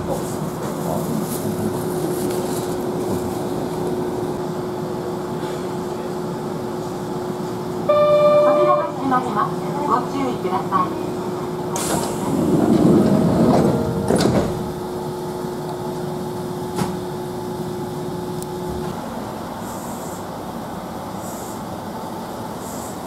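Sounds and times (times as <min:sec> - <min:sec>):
stopped train humming: 0:00.0 - 0:23.0
train rushing clatter: 0:08.6 - 0:16.0.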